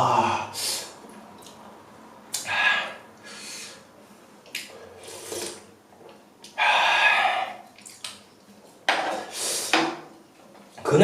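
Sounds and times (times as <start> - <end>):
noodles being slurped: 4.7 - 5.7.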